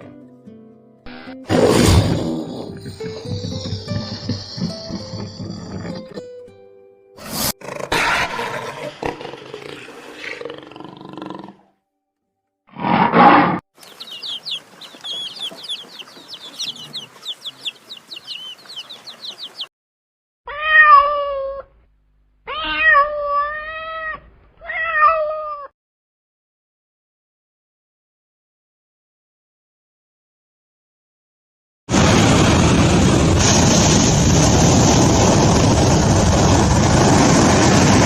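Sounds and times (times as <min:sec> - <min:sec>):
rough noisy animal sound: 0:07.4 - 0:11.6, 0:12.7 - 0:19.6
rapid high-pitched chirping: 0:13.8 - 0:19.7
cat meowing: 0:20.5 - 0:21.7, 0:22.5 - 0:25.7
short loud animal burst: 0:31.9 - 0:38.0.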